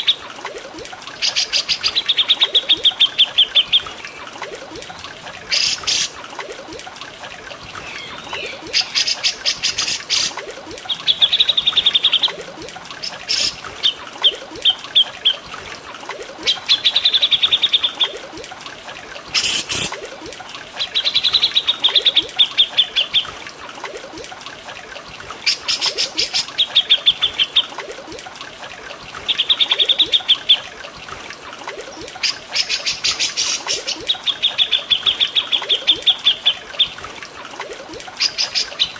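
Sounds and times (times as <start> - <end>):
running water trickling: 0.0 - 38.9
songbirds trilling and chattering: 7.6 - 12.4.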